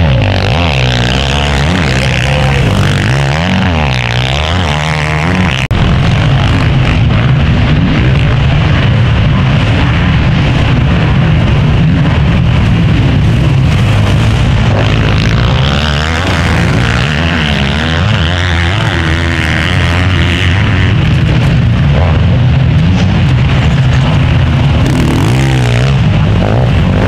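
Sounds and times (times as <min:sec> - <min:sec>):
motocross bikes revving: 0:00.0 - 0:27.0.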